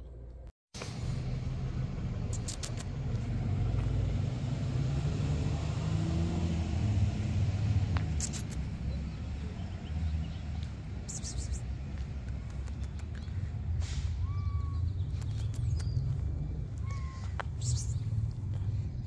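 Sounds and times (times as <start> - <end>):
vehicle engine rumble: 0.0 - 19.0
light clicks: 12.2 - 13.3.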